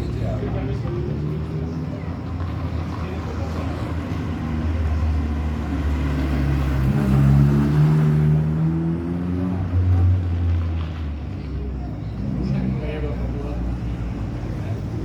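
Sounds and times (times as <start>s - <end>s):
rally car engine revving: 4.9s - 11.0s.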